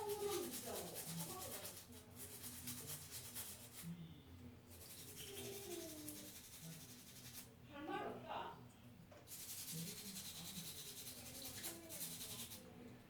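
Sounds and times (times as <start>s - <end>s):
faint rustling and rubbing: 9.3s - 12.6s.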